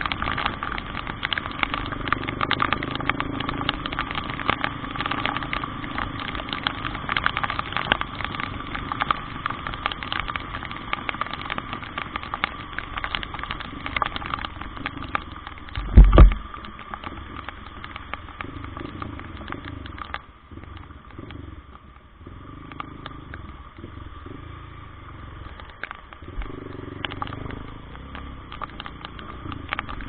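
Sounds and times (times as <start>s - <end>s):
heavy rain pattering: 0.0s - 30.0s
vehicle running: 0.0s - 30.0s
loud low thump: 15.8s - 16.4s.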